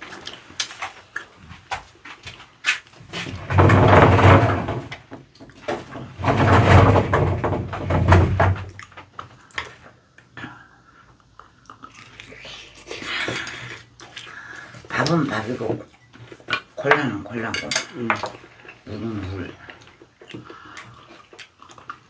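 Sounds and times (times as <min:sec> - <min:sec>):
person chewing: 0:00.0 - 0:03.3, 0:08.7 - 0:15.2, 0:19.6 - 0:22.0.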